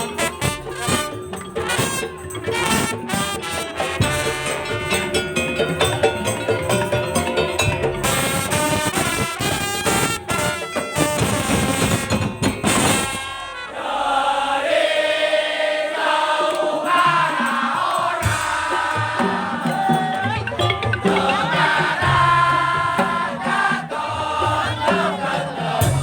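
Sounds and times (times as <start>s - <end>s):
drums: 0.0s - 13.6s, 16.7s - 26.0s
melodic line: 20.4s - 22.0s.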